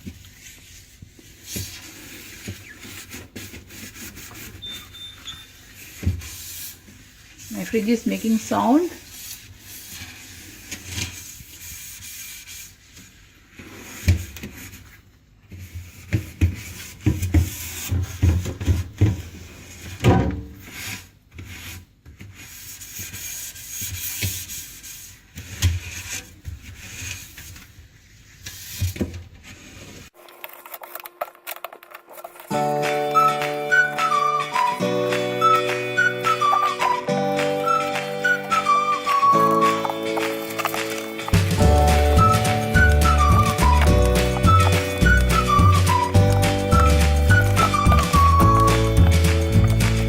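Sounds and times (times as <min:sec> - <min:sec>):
scrubbing inside a refrigerator: 0:00.0 - 0:30.2.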